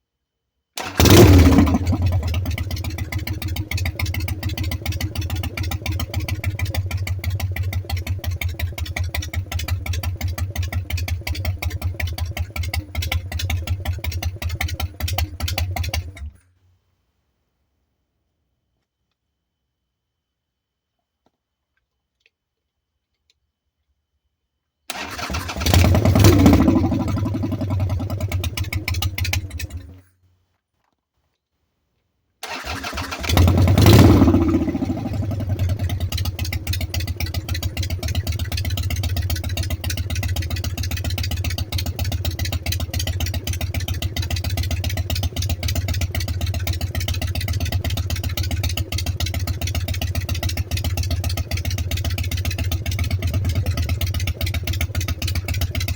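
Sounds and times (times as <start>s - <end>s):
motorcycle engine idling: 0.8s - 16.3s, 25.0s - 30.0s, 32.5s - 55.9s
motorcycle engine starting and revving: 0.8s - 16.4s, 24.9s - 30.1s, 32.4s - 55.9s.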